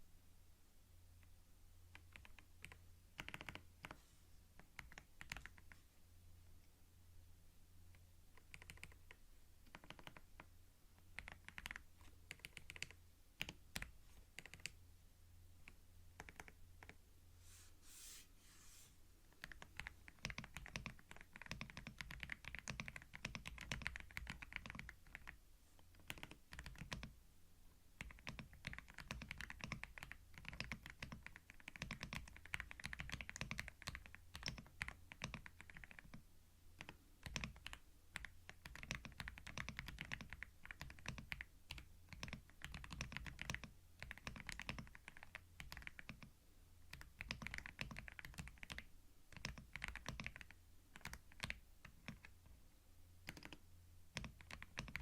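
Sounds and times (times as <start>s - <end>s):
computer keyboard typing: 1.9s - 4.0s, 4.6s - 5.8s, 8.4s - 14.8s, 15.6s - 17.0s, 19.4s - 27.1s, 28.0s - 36.2s, 36.8s - 46.3s, 46.9s - 52.4s, 53.2s - 55.0s.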